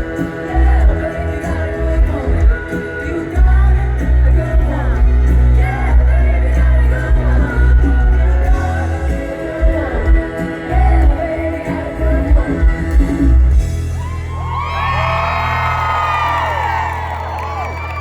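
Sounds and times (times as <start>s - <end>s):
woman singing: 0.0s - 13.7s
live pop-rock band: 0.0s - 18.0s.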